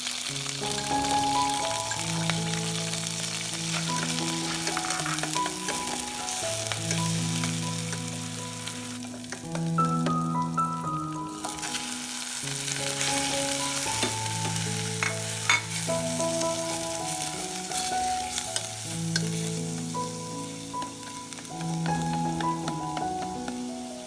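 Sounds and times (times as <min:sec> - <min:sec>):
background music: 0:00.0 - 0:24.0
food sizzling in a pan: 0:00.0 - 0:24.0
utensil clicking against pan: 0:03.7 - 0:07.1, 0:09.1 - 0:10.2, 0:20.7 - 0:23.6.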